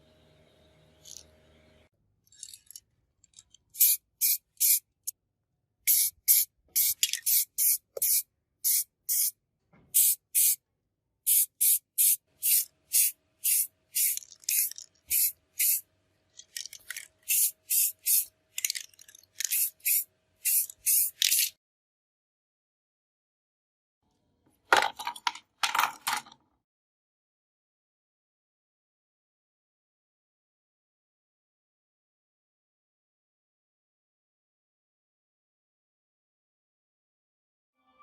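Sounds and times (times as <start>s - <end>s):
aerosol spray can bursts: 3.8s - 4.8s, 5.9s - 9.4s, 10.0s - 10.6s, 11.3s - 15.8s, 17.3s - 18.3s, 19.5s - 21.5s.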